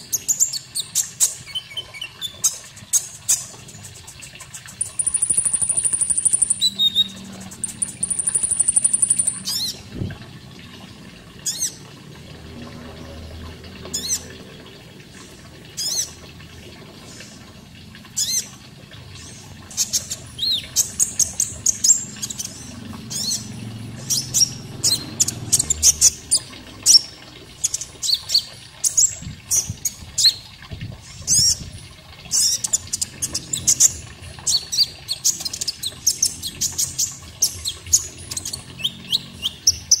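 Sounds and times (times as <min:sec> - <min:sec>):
bird chirps and twitters: 0:00.1 - 0:09.8, 0:15.8 - 0:16.2, 0:18.2 - 0:18.5, 0:19.2 - 0:30.4, 0:32.3 - 0:40.0.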